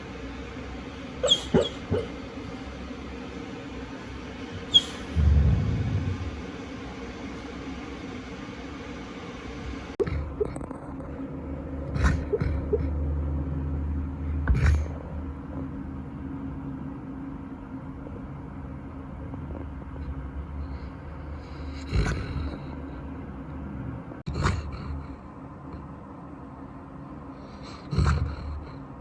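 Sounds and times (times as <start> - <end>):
dog snoring: 4.7 - 6.5, 14.5 - 15.0, 20.7 - 23.0, 27.4 - 28.8.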